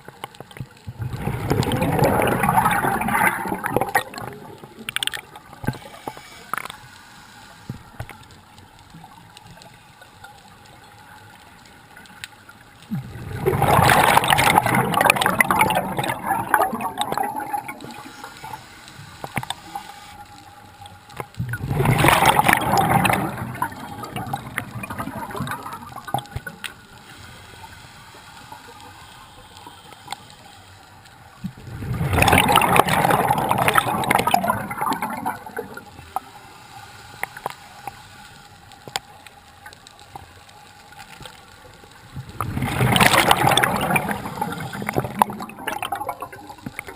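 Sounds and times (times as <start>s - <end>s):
faint steady underwater noise: 0.0s - 46.9s
diver's exhaled bubbles gurgling: 0.8s - 6.2s, 12.9s - 18.6s, 21.4s - 26.9s, 31.4s - 36.2s, 42.1s - 46.9s.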